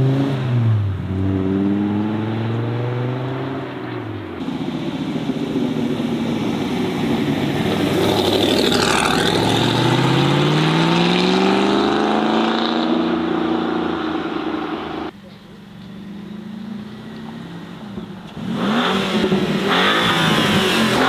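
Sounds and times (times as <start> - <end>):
car engine accelerating past: 5.1 - 15.1.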